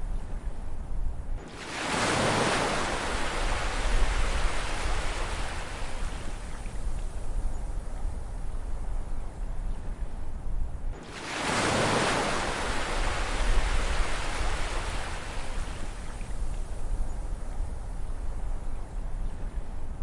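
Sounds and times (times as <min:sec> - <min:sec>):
low rumble of surf: 0:00.0 - 0:20.0
ocean wave breaking: 0:01.5 - 0:06.0, 0:11.0 - 0:15.6.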